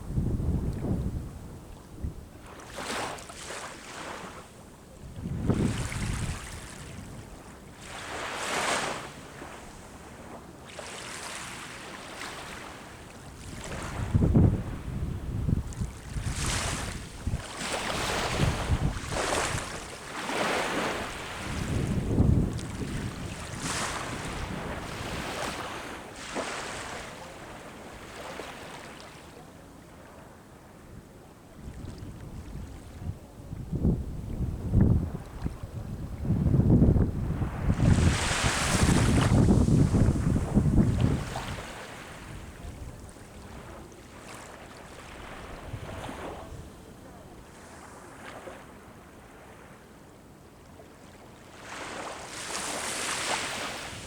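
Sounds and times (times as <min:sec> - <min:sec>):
wind buffeting microphone: 0:00.0 - 0:02.4, 0:05.1 - 0:07.3, 0:13.4 - 0:19.9, 0:21.0 - 0:25.5, 0:31.6 - 0:43.1
sea waves washing on shore: 0:02.4 - 0:30.3, 0:34.6 - 0:49.8, 0:51.5 - 0:54.0.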